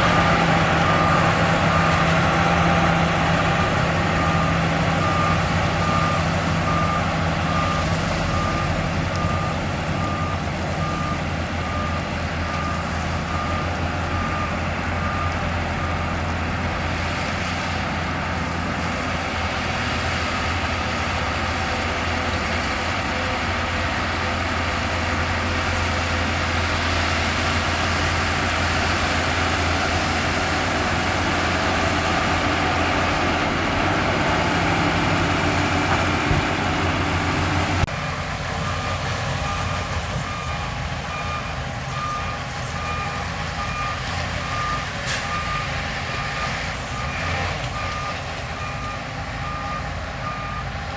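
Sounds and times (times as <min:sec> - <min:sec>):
reversing alarm beeping: 0:00.0 - 0:17.3, 0:27.8 - 0:50.9
heavy diesel machinery running: 0:00.0 - 0:50.9.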